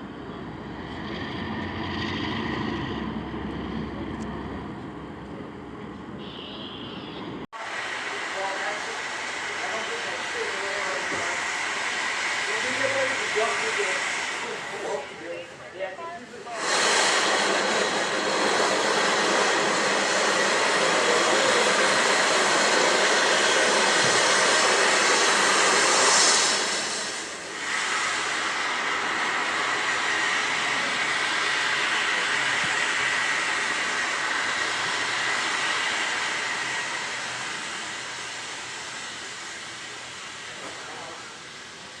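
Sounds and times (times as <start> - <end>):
train wheels rolling on rail: 7.4 - 42.0.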